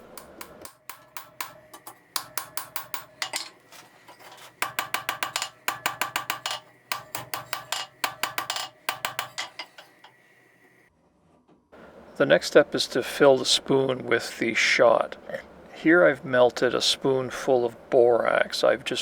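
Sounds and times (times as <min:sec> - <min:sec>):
hammer striking steel bar: 0:00.0 - 0:03.5, 0:04.6 - 0:10.1.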